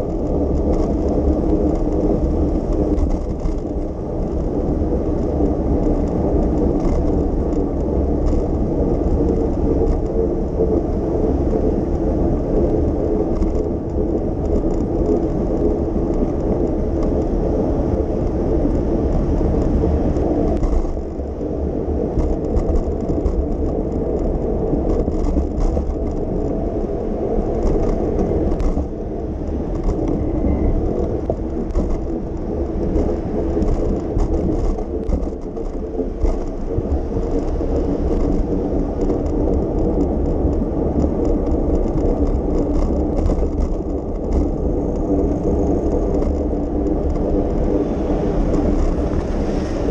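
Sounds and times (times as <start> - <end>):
road noise: 0.0 - 49.9
wind on microphone: 0.0 - 49.9.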